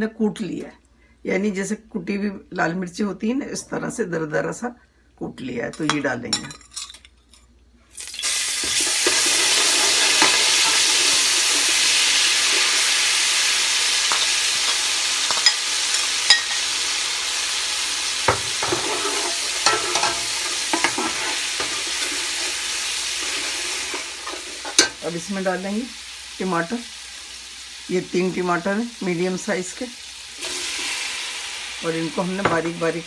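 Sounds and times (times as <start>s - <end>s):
metal spoon clinking against pot: 5.7s - 7.4s, 18.6s - 21.8s
paste sizzling in hot oil: 8.0s - 33.0s.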